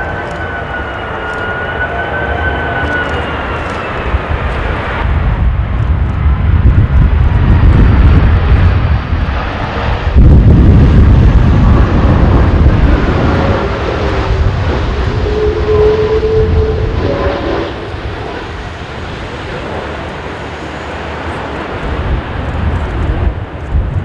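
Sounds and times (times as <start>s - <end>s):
faint engine whine: 0.0s - 7.4s
jet engines roaring: 0.0s - 24.0s
wind buffeting microphone: 2.5s - 24.0s.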